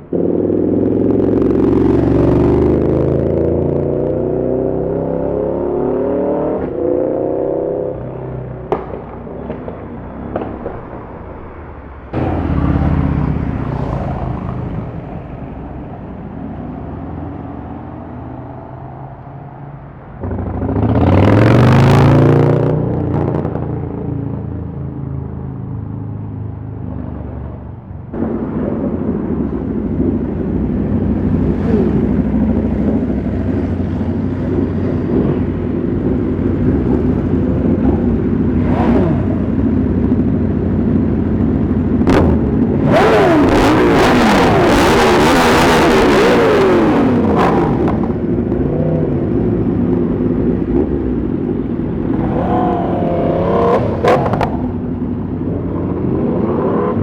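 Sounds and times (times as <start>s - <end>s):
motorcycle and traffic engines: 0.0s - 57.0s
vehicle passing close by: 12.1s - 24.2s.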